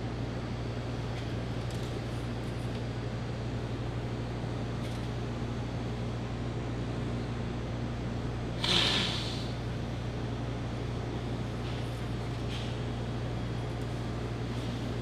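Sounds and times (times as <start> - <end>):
steady low hum: 5.7 - 11.3
hissing whoosh: 8.6 - 9.6.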